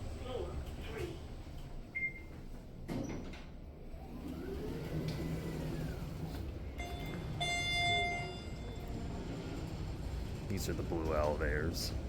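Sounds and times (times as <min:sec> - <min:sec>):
elevator door sliding: 0:00.0 - 0:12.0
door operator whine: 0:02.9 - 0:10.3
elevator chime dinging: 0:06.8 - 0:09.0.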